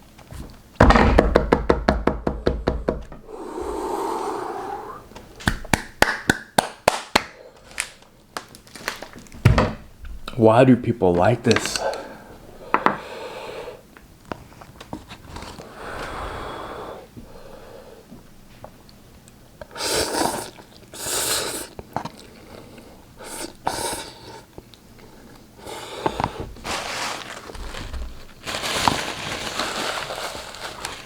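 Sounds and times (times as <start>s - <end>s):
breath bursts: 3.2s - 5.4s, 11.7s - 13.9s, 15.6s - 18.1s, 19.7s - 24.5s
person eating noisily: 3.3s - 5.4s, 19.7s - 26.4s
slurping noodles: 19.7s - 22.4s.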